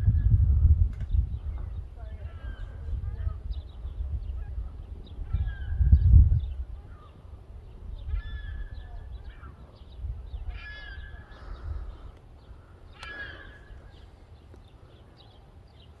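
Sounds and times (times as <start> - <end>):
harsh bird calls: 7.8 - 15.9.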